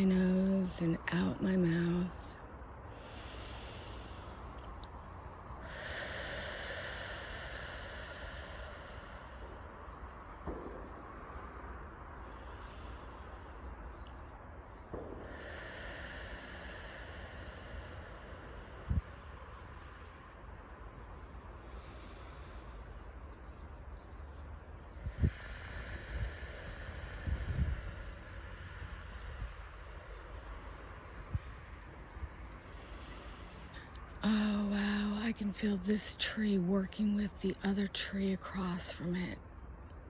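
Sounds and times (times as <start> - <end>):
low outdoor rumble: 0.0 - 40.0
deep breathing: 2.4 - 11.2, 12.0 - 23.9, 24.6 - 35.2.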